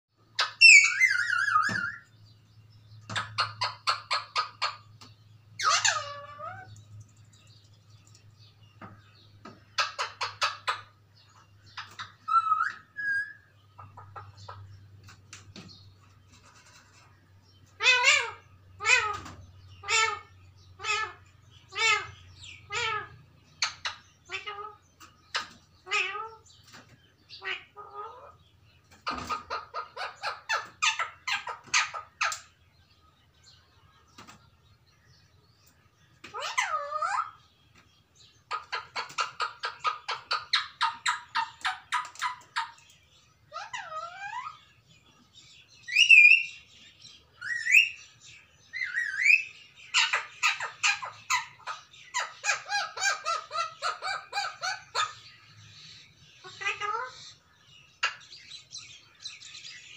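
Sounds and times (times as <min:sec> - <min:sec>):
parakeets shrieking: 0:00.3 - 0:02.1, 0:03.1 - 0:05.0, 0:05.6 - 0:06.8, 0:09.7 - 0:14.7, 0:17.7 - 0:26.6, 0:27.3 - 0:28.4, 0:29.0 - 0:32.5, 0:36.2 - 0:37.6, 0:38.5 - 0:44.9, 0:45.8 - 0:46.7, 0:47.4 - 0:48.1, 0:48.7 - 0:58.4
parakeet whistled calls: 0:00.4 - 0:02.1
parakeet harsh squawks: 0:05.6 - 0:06.7, 0:17.8 - 0:24.8, 0:25.4 - 0:26.4, 0:36.3 - 0:37.4, 0:43.5 - 0:44.6, 0:48.8 - 0:55.3, 0:56.4 - 0:57.4.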